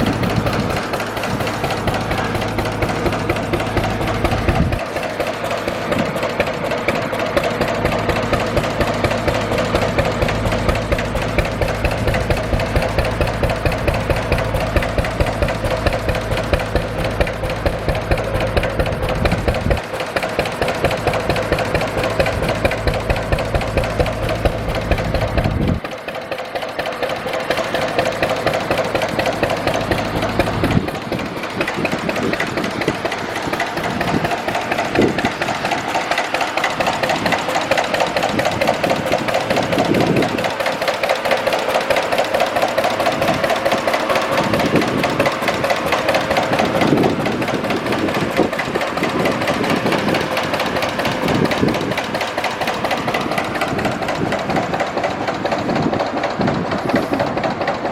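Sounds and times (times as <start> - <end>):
gas engine knocking: 0.0 - 57.9
low rumble: 21.5 - 25.8.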